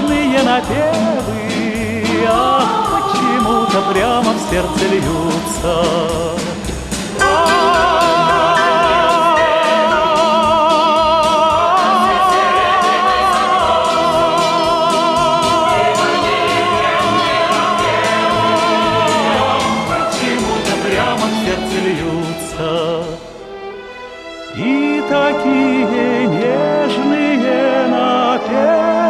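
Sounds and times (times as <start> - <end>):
steady beat: 0.0 - 23.4
song with wavering melody: 7.2 - 11.2.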